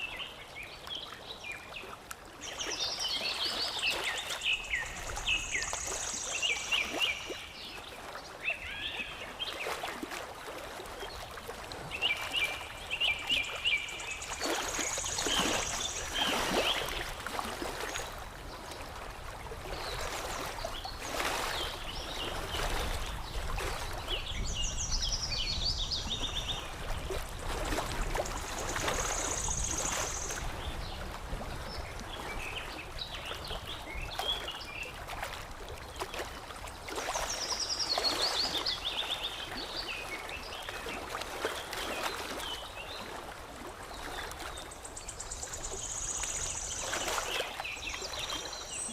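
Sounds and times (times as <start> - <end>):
water lapping and trickling: 0.0 - 48.9
birds chirping: 45.0 - 48.9.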